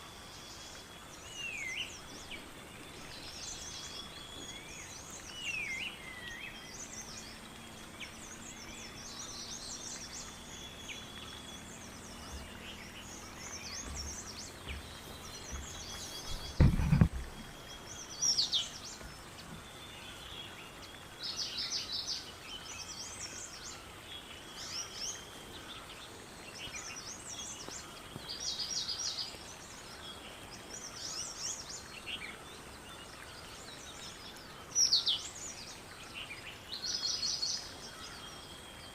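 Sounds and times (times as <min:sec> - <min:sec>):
birds chirping and singing: 0:00.0 - 0:38.9
outdoor background hiss: 0:00.0 - 0:38.9
low thump: 0:15.5 - 0:17.4.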